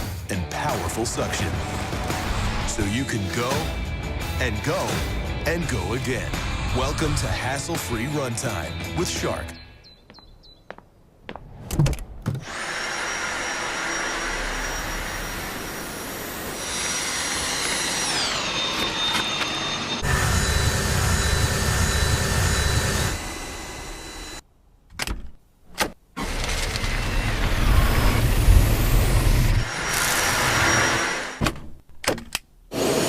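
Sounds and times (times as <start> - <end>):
vacuum cleaner motor whine: 12.5 - 24.4.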